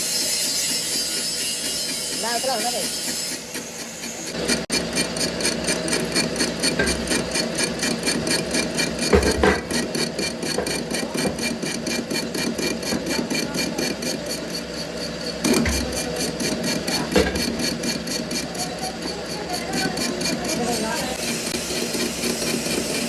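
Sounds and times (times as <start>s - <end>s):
knocks: 9.1s - 9.8s.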